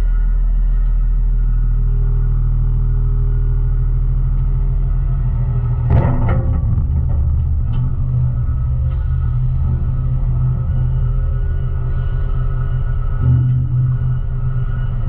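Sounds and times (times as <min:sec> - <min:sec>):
garbage truck engine rumbling: 0:05.6 - 0:15.0
clattering: 0:05.9 - 0:10.5.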